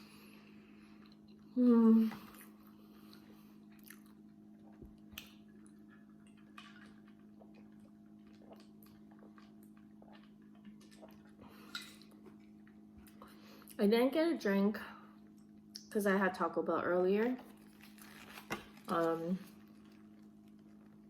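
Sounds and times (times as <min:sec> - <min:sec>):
low electrical hum: 0:00.0 - 0:21.0
chewing clicks and smacks: 0:03.1 - 0:13.2.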